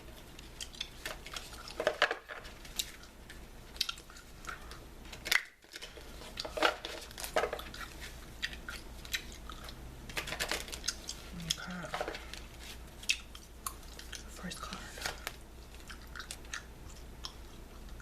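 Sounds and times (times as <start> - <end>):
bubble gum chewing: 0.1 - 1.8, 2.6 - 9.8, 10.7 - 11.9, 12.5 - 14.3, 15.2 - 18.0.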